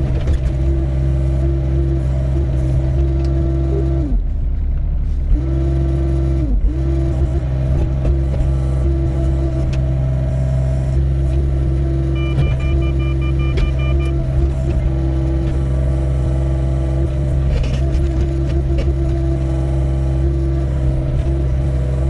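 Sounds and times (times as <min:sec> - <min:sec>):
excavator diesel engine running: 0:00.0 - 0:22.0
rapid beeping: 0:12.2 - 0:14.1.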